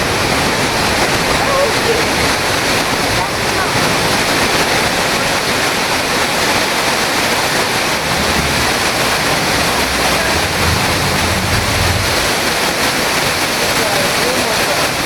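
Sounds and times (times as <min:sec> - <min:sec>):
waterfall rushing: 0:00.0 - 0:15.0
low rumble: 0:07.3 - 0:13.5.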